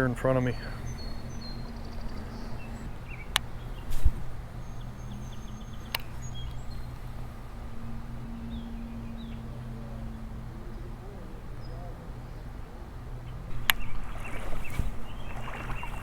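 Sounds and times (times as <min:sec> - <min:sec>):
small birds chirping: 0:00.0 - 0:16.0
steady low hum: 0:00.0 - 0:16.0
sharp clicks: 0:05.8 - 0:06.7.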